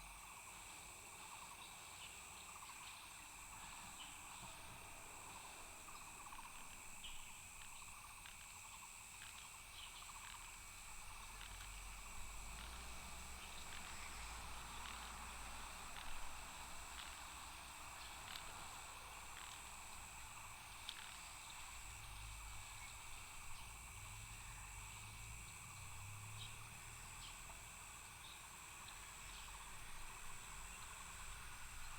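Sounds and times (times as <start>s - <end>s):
night insects trilling: 0.0s - 31.9s
faint ticks: 2.8s - 27.8s.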